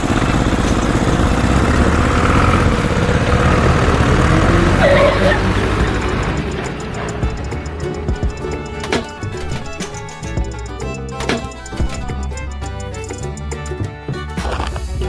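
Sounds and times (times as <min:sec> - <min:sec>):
vehicle engine low rumble: 0:00.0 - 0:15.0
short high-pitched squeal: 0:04.7 - 0:13.3.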